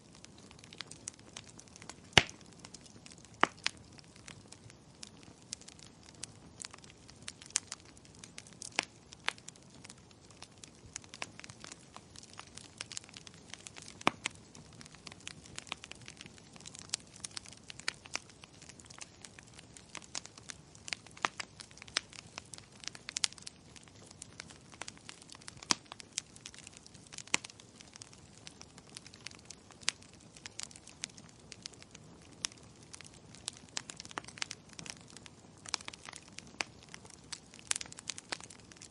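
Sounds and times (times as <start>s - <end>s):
low hiss of burning: 0.0s - 38.9s
wood fire popping and snapping: 0.0s - 38.9s.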